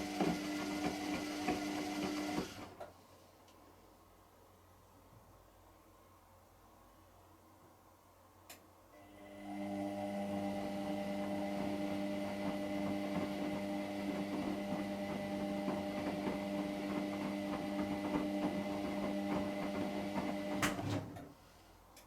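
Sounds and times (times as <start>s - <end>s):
washing machine motor hum: 0.0s - 2.8s, 9.0s - 21.2s.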